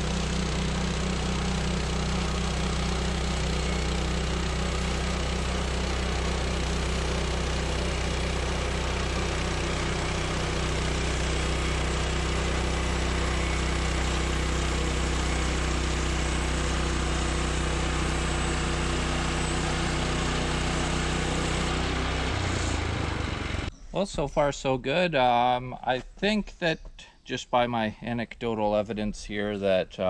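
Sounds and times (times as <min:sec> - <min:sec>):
bandsaw cutting through log: 0:00.0 - 0:23.7.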